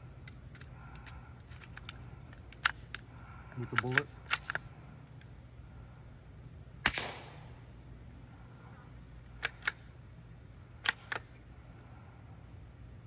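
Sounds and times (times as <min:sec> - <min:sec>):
rifle bolt metallic clicks: 0:00.2 - 0:05.3, 0:09.4 - 0:09.9, 0:10.8 - 0:11.4
suppressed rifle shot: 0:06.8 - 0:07.7.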